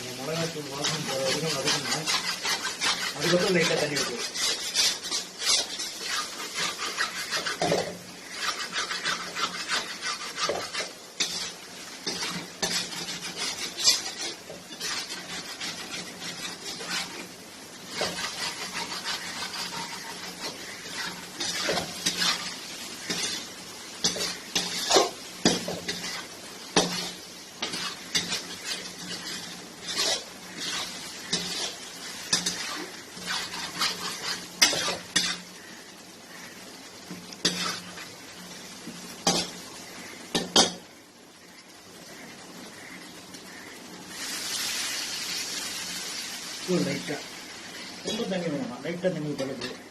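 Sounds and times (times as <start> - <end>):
faint sizzle: 0.0 - 49.9
spoon scraping and clinking a pan: 0.8 - 17.2, 17.9 - 26.2, 26.8 - 35.4.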